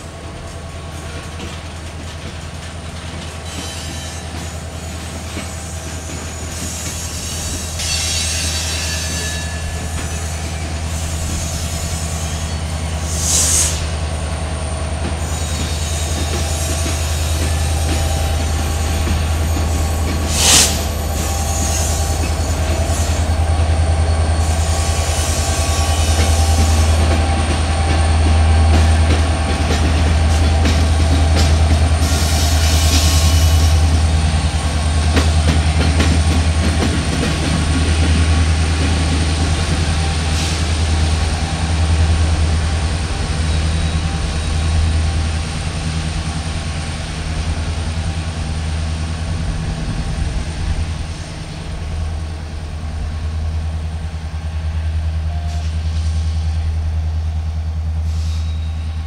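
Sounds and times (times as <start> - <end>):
diesel locomotive rumbling: 0.0 - 59.0
train wheels rumbling on rail: 0.0 - 59.0
high wheel squeal: 5.4 - 14.0, 15.2 - 27.0.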